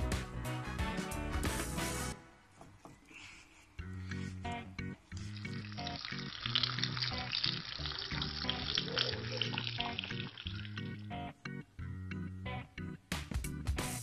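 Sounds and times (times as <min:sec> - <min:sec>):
background music: 0:00.0 - 0:02.8, 0:03.7 - 0:14.0
chicken sizzling in oil: 0:05.2 - 0:11.0.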